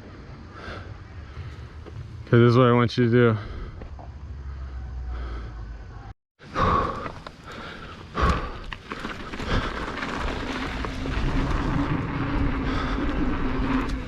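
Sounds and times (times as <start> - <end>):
bike tyre noise: 6.6 - 14.0
bike rattling: 7.0 - 14.0.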